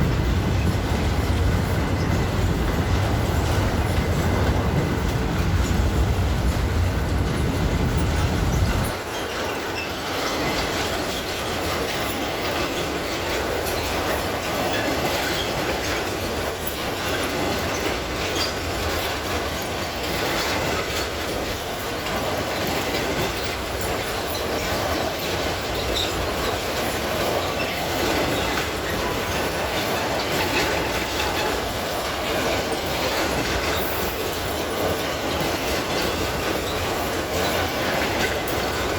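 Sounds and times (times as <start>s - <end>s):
train wheels clattering on rails: 0.0s - 38.9s
wheel squeal: 7.4s - 19.1s, 22.0s - 38.9s.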